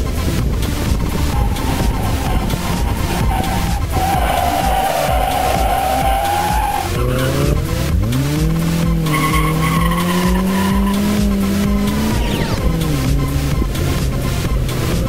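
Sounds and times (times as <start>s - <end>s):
car engine revving: 0.0s - 15.0s
electronic dance music: 0.0s - 15.0s
tyres squealing: 0.8s - 7.7s, 8.4s - 12.9s.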